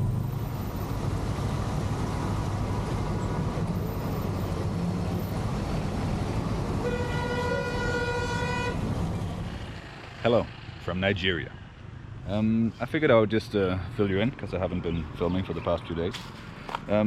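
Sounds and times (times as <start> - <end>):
road traffic rumble: 0.0 - 17.0
vehicle horn blast: 6.8 - 8.8.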